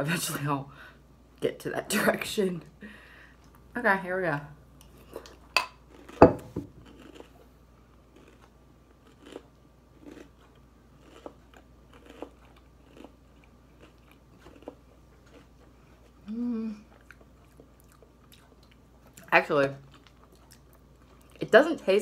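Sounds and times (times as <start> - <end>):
person chewing cereal: 4.8 - 6.2, 6.8 - 21.4.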